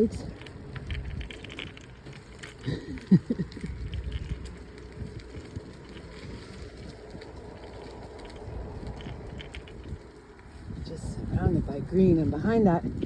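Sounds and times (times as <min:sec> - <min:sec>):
bicycle tyres rumbling: 0:00.0 - 0:13.0
bike rattling: 0:00.0 - 0:13.0
wind on microphone: 0:03.0 - 0:13.0.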